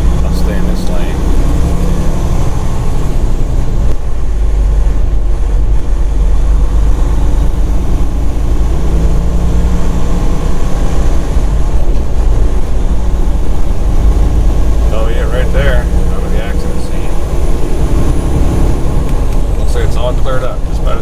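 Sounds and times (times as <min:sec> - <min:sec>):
diesel truck engine rumble: 0:00.0 - 0:21.0
road noise: 0:00.0 - 0:21.0.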